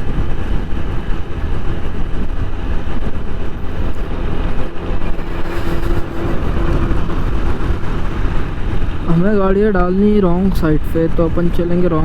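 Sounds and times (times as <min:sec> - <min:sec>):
steady low tone: 0:00.0 - 0:10.9
passing traffic: 0:00.0 - 0:12.0
wind rumble on microphone: 0:00.0 - 0:12.0
motorcycle engine: 0:00.5 - 0:09.8.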